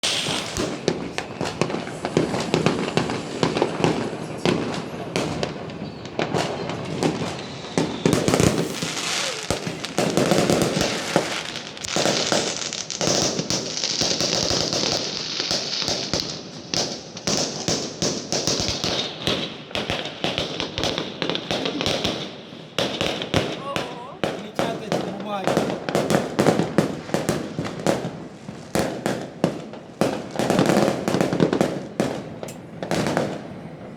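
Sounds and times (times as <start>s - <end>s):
steady hiss: 0.0s - 4.4s
fireworks bangs and crackling: 0.0s - 33.9s.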